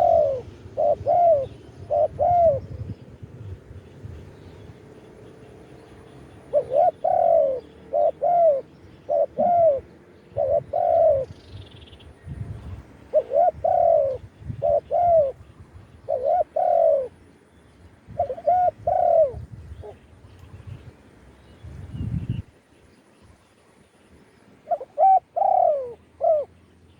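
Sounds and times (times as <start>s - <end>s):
dove cooing: 0.0s - 3.0s, 6.1s - 11.5s, 13.0s - 17.2s, 18.1s - 20.0s, 24.6s - 26.5s.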